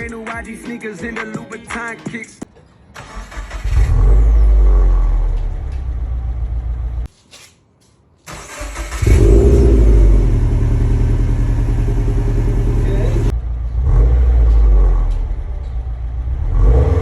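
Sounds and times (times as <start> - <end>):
car engine running through exhaust: 3.6 - 7.1, 8.8 - 17.0.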